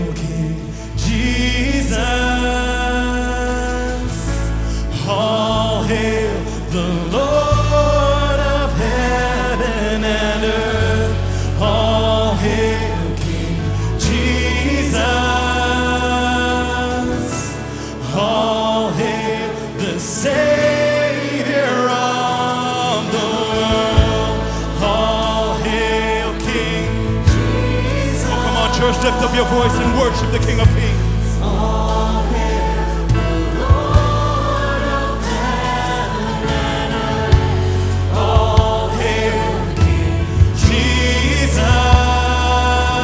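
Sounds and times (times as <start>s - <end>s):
bass: 0.0s - 43.0s
group of voices singing: 0.0s - 43.0s
held keyboard chords: 0.0s - 43.0s
band playing: 22.9s - 43.0s.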